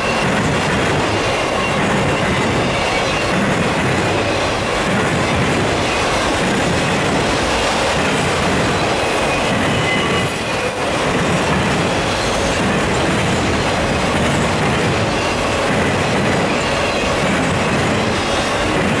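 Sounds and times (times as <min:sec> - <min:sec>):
train wheels rolling on rail: 0:00.0 - 0:19.0
faint high wheel squeals: 0:09.3 - 0:11.3.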